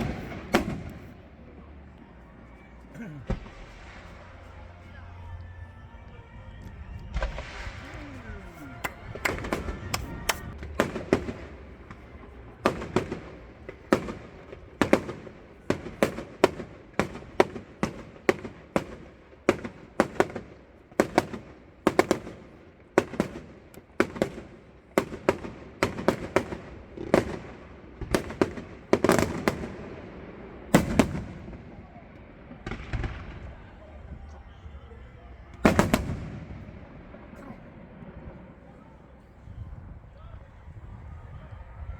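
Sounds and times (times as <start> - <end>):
fireworks bangs with echo: 0.0 - 1.2, 6.1 - 34.4, 35.5 - 39.2.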